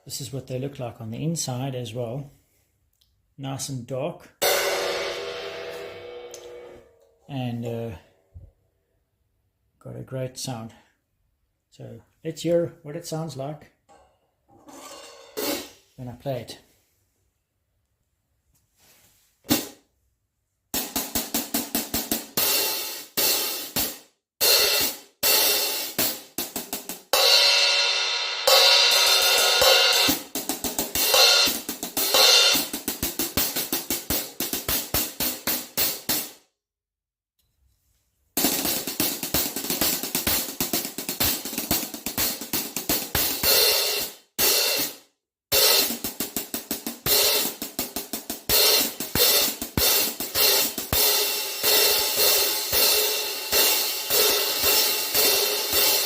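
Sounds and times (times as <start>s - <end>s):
open hi-hat ringing wash: 4.4s - 7.0s
closed hi-hat strikes: 4.4s - 8.1s, 20.8s - 36.4s, 38.4s - 56.0s.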